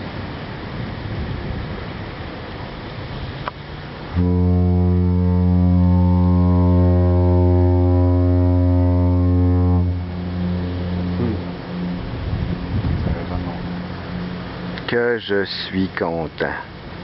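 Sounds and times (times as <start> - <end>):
ship's horn long low blast: 3.8 - 14.9.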